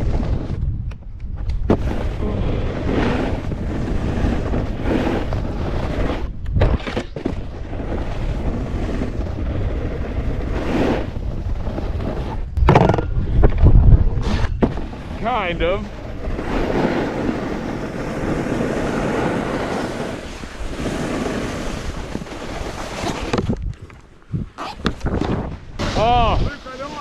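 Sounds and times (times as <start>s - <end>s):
snowboard edges scraping snow: 0.0s - 0.7s, 1.6s - 12.5s, 14.1s - 23.6s, 24.3s - 27.0s
wind buffeting microphone: 0.0s - 27.0s
sharp knocks: 12.6s - 13.2s.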